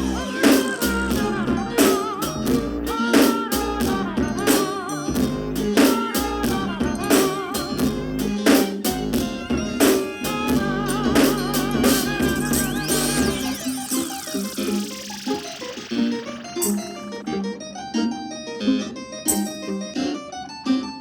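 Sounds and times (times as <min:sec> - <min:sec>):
steady drum beat: 0:00.0 - 0:15.7
person singing: 0:00.0 - 0:17.5
guitar: 0:00.0 - 0:21.0.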